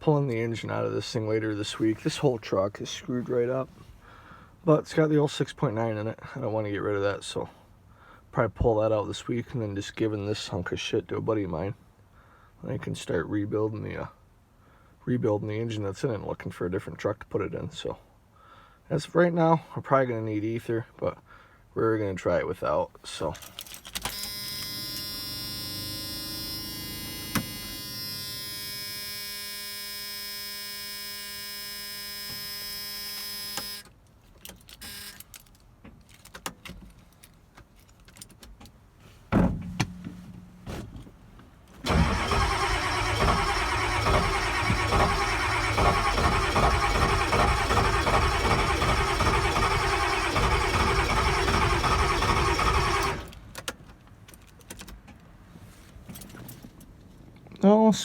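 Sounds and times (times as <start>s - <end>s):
warning buzzer: 24.1s - 33.9s
diesel engine starter cranking: 41.8s - 53.6s.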